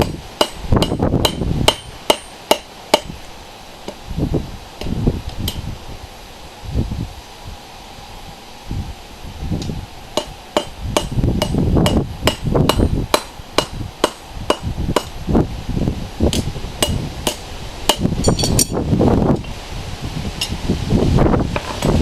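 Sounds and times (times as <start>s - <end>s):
hammer striking metal on anvil: 0.0s - 3.2s, 10.2s - 15.2s, 16.3s - 18.8s.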